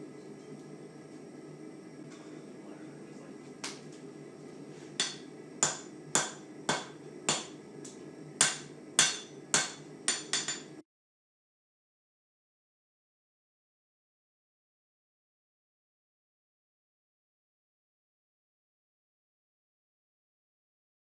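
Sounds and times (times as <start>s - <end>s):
steady low hum: 0.0s - 10.8s
hammer striking steel on anvil: 5.0s - 7.6s, 8.4s - 10.8s.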